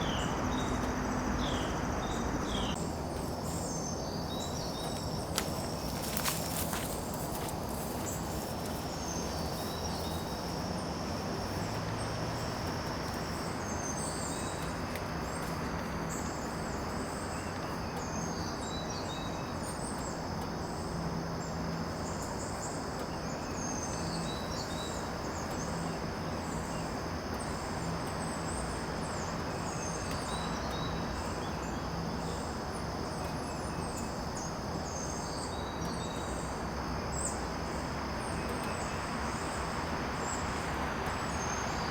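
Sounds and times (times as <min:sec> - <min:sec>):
insects droning: 0:00.0 - 0:41.9
small birds chirping: 0:00.0 - 0:41.9.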